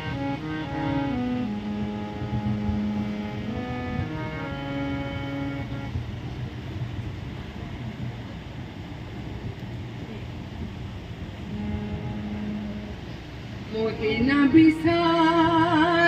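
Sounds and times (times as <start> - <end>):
held musical chord: 0.0 - 6.8, 11.4 - 14.0
low background rumble: 0.0 - 16.0.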